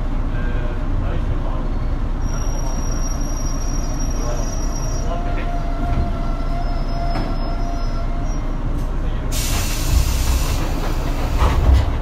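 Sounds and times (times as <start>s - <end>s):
train equipment rumble and hum: 0.0s - 12.0s
compressed air hissing: 9.3s - 11.0s.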